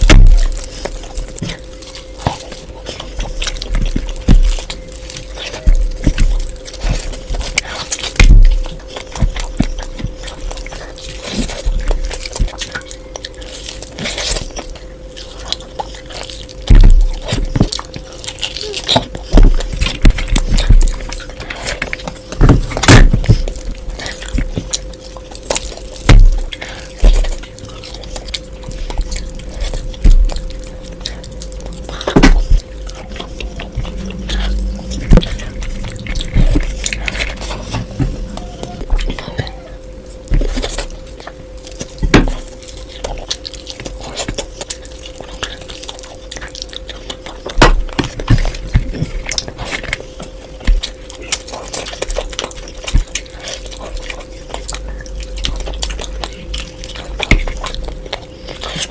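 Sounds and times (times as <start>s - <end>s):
faint hum: 0.0s - 58.9s
wet chewing and crunching: 0.0s - 58.9s
low thumps: 28.8s - 39.2s.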